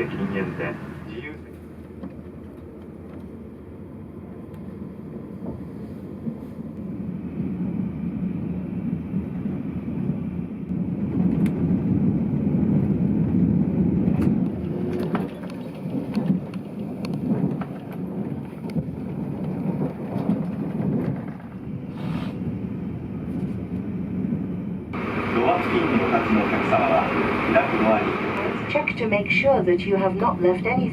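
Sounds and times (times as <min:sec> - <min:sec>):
train running rumble: 0:00.0 - 0:30.9.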